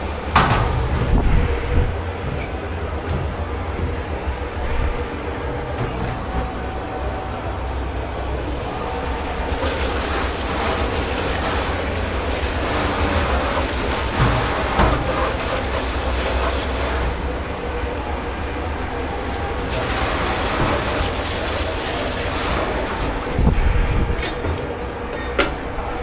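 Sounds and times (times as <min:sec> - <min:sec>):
low machine rumble: 0:00.0 - 0:26.0
knocks: 0:00.3 - 0:04.9
loud hiss: 0:08.6 - 0:17.8, 0:18.5 - 0:23.6.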